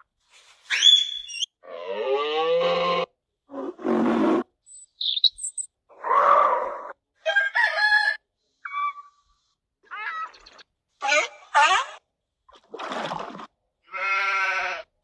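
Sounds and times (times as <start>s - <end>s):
faint high chirps: 4.7s - 5.7s.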